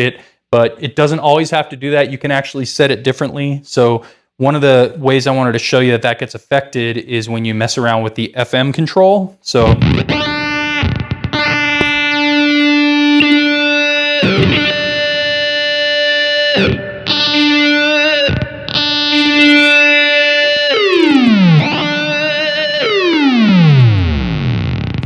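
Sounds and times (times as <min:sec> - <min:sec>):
buzzy synthesized guitar notes: 0:09.6 - 0:25.0.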